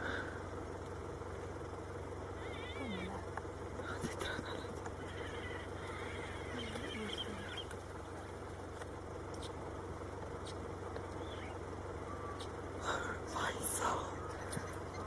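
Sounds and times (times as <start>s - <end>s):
car engines idling: 0.0s - 15.0s
bird chirps: 5.0s - 8.4s, 10.4s - 12.6s.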